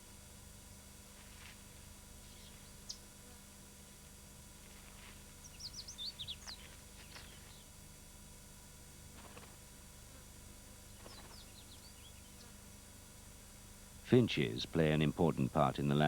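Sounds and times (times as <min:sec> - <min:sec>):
faint steady hum: 0:00.0 - 0:16.0
birds chirping: 0:05.4 - 0:07.6.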